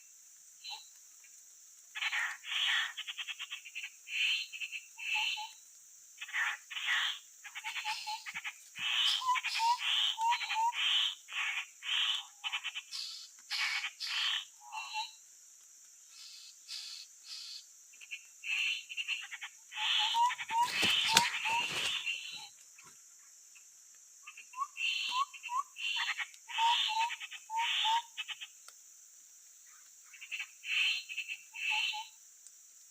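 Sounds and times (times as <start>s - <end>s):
birds chattering and whistling: 6.2s - 15.2s, 16.0s - 22.9s, 24.2s - 28.6s, 29.6s - 32.1s.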